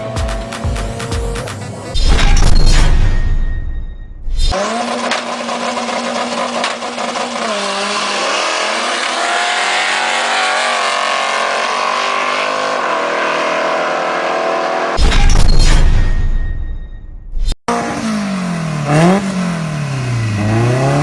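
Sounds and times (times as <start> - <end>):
racing car engine at high revs: 4.5 - 15.0, 17.7 - 21.0.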